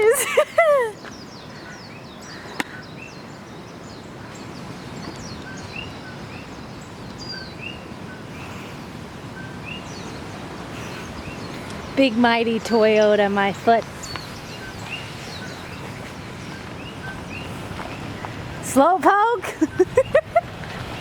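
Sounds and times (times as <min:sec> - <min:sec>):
small birds chirping: 0:00.1 - 0:21.0.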